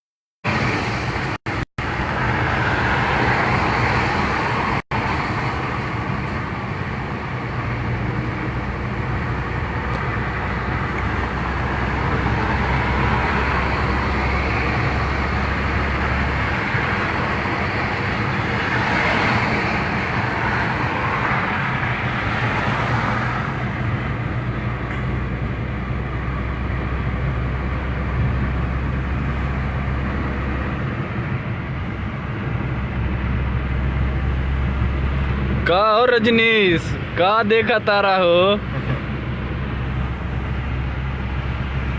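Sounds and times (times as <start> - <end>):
car engine drone: 0.4 - 41.9
tyre and road noise: 0.4 - 41.9.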